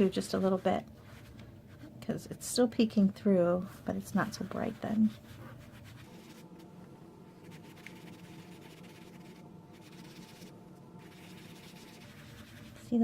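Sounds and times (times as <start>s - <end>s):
faint electrical hum: 0.0s - 13.0s
sponge rubbing on cardstock: 3.6s - 6.6s, 7.4s - 13.0s.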